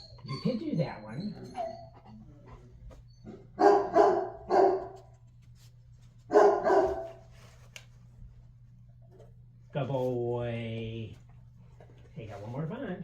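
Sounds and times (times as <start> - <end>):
puppy barking: 3.3 - 5.1, 6.3 - 7.2.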